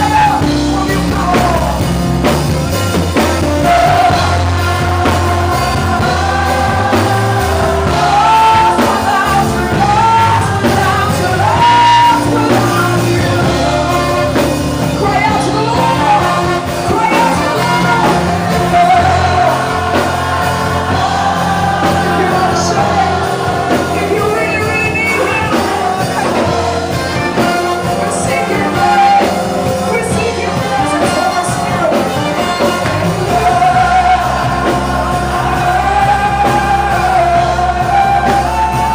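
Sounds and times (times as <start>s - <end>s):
band with bass and drums: 0.0s - 38.9s
gospel singing: 0.0s - 38.9s.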